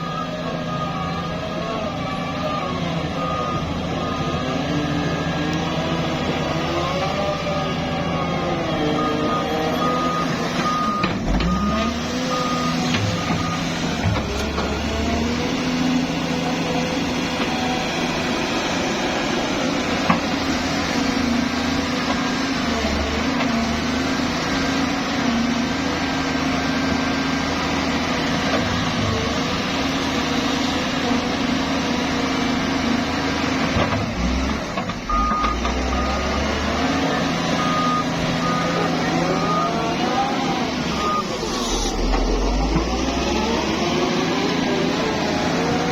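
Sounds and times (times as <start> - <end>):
reversing alarm beeping: 0.0 - 15.4, 35.1 - 44.3
excavator diesel engine working: 0.0 - 45.9.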